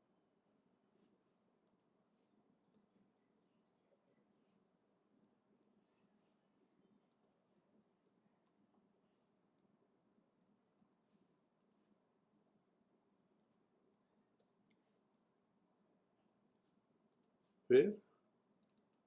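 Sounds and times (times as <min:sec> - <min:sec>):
computer mouse and keyboard clicks: 0:18.6 - 0:19.0.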